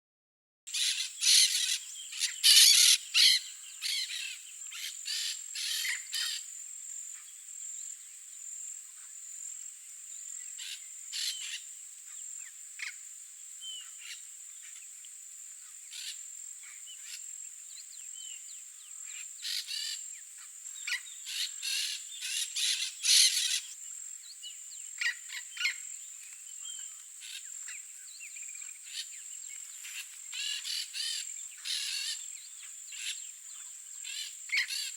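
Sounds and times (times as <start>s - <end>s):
parakeets screeching: 0.8s - 4.3s.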